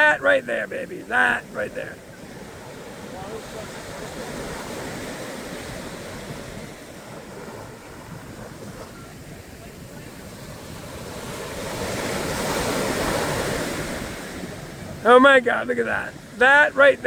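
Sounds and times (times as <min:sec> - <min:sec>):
surf washing onto beach: 0:00.0 - 0:17.0
wind buffeting microphone: 0:02.0 - 0:15.0.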